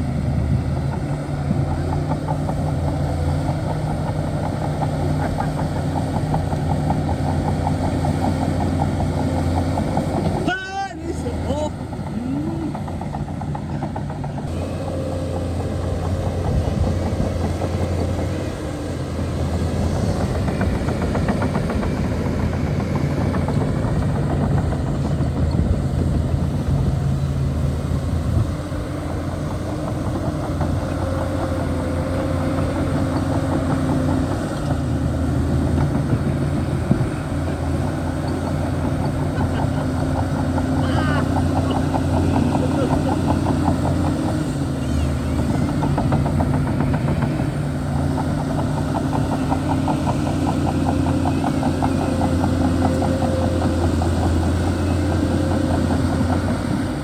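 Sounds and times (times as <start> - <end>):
bulldozer diesel engine under load: 0.0 - 57.0.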